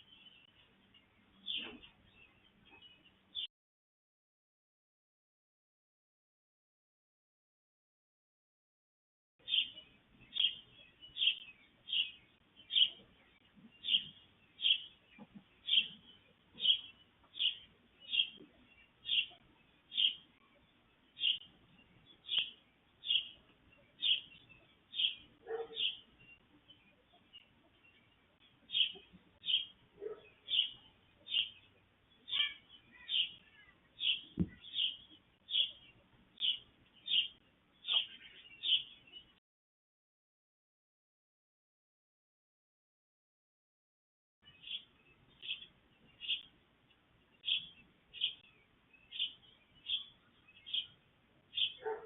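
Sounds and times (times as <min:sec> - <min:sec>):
bird chirping: 0:00.0 - 0:03.5, 0:09.4 - 0:39.4, 0:44.4 - 0:52.0
dull thump: 0:34.4 - 0:34.6.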